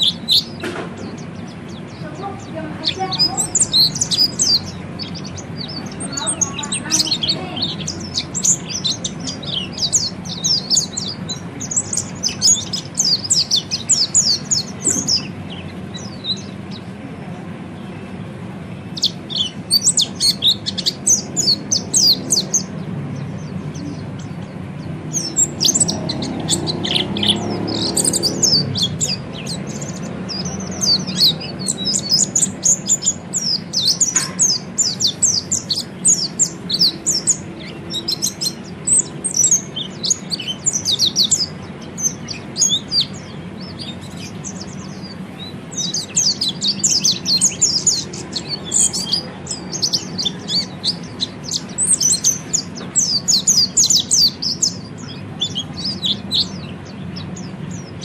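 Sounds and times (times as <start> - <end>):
thrush singing high twitter: 0.0 - 58.0.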